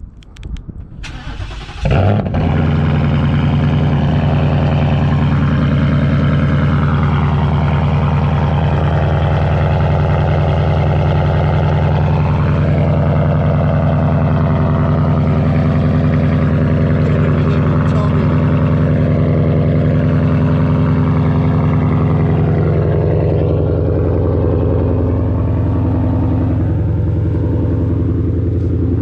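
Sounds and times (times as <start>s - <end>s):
car engine cold start: 0.8s - 3.2s
car engine fast idle: 0.9s - 29.0s.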